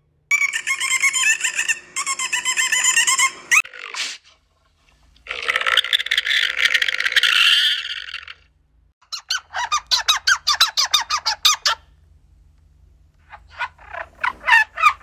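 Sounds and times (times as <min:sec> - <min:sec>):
alpaca shrill squeaky call: 0:00.3 - 0:03.6
squirrel chirping calls: 0:00.3 - 0:03.6.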